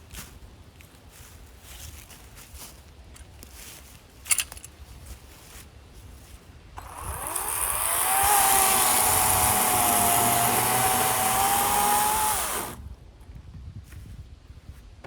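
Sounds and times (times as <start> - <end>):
battery chainsaw whining: 6.8 - 12.9.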